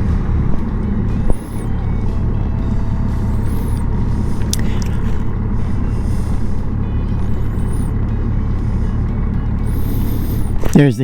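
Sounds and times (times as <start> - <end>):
motorcycle engine running: 0.0 - 11.0
road noise: 0.0 - 11.0
brief high squeak: 1.2 - 1.8, 7.2 - 8.0.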